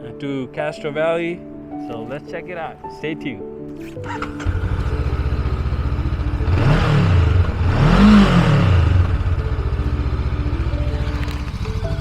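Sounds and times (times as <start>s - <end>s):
motorcycle engine idling and revving: 4.0s - 12.0s.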